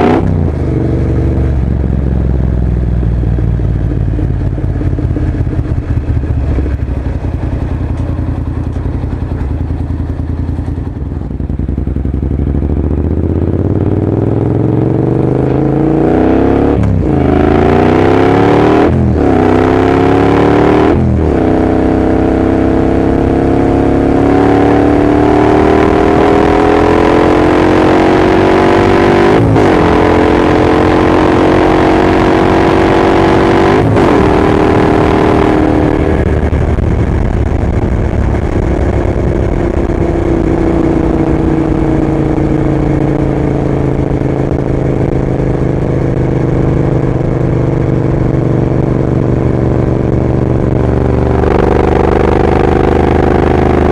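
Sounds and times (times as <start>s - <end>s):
motorcycle engine accelerating: 0.0s - 53.9s
gear changes: 25.4s - 53.9s.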